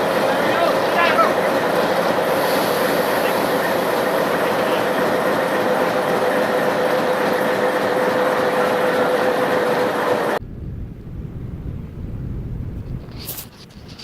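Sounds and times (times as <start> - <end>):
train wheels rushing on rails: 0.0 - 10.4
low rumble: 10.4 - 14.0.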